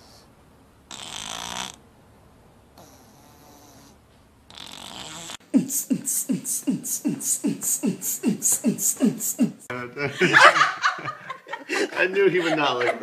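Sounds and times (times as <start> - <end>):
cat snoring: 0.9 - 1.8, 2.8 - 5.4.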